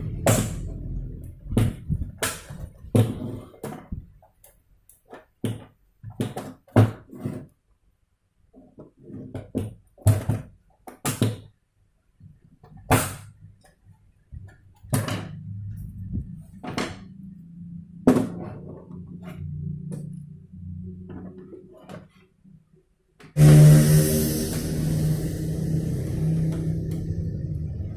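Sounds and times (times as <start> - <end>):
plastic parts and tools knocking: 1.4 - 7.6, 12.2 - 17.2, 17.9 - 20.2
low steady hum: 23.4 - 27.9.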